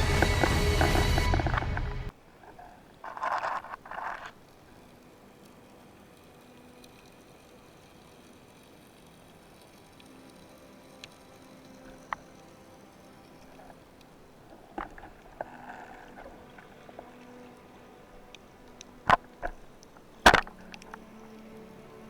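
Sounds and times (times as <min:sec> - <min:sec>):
sharp knocks and clicks: 0:20.2 - 0:21.0.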